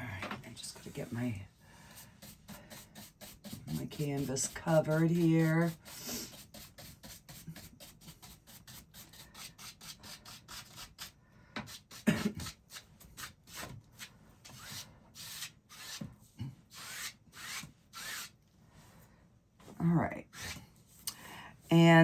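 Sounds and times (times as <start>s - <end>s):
paintbrush scrubbing on canvas: 1.9s - 16.0s.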